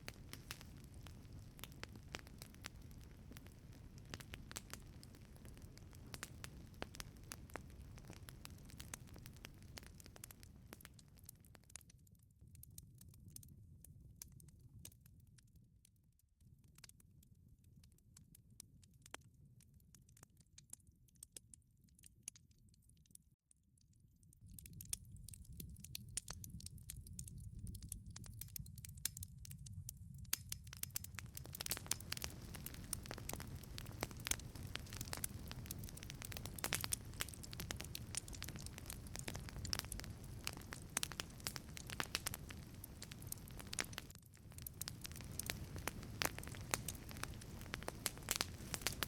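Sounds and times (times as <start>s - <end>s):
fire rushing: 0.0s - 10.5s, 31.1s - 49.0s
fire popping and crackling: 0.0s - 15.6s, 24.2s - 49.0s.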